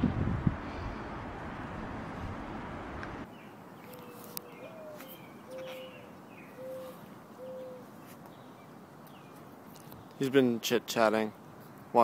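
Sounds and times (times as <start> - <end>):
faint high bird chirps: 3.3 - 9.4
low whistled bird notes: 3.9 - 7.8.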